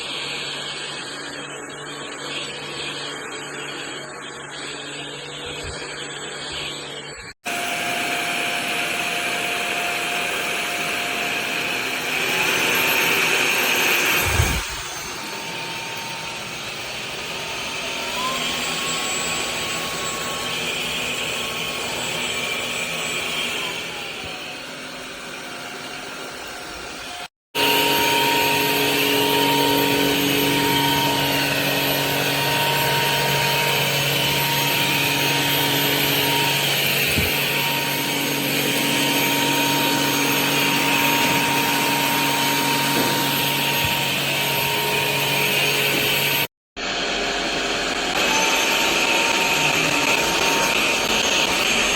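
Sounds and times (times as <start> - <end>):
vacuum cleaner motor whine: 0.0 - 51.9.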